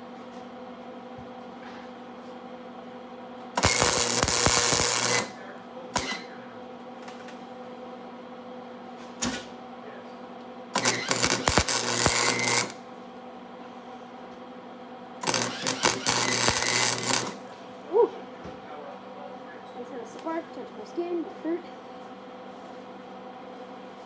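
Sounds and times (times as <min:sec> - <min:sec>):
welding arc crackling: 0:03.6 - 0:05.4, 0:06.0 - 0:06.2, 0:10.8 - 0:12.8, 0:15.2 - 0:17.6
welder electrical hum: 0:03.6 - 0:06.4, 0:10.8 - 0:12.9, 0:15.2 - 0:17.9.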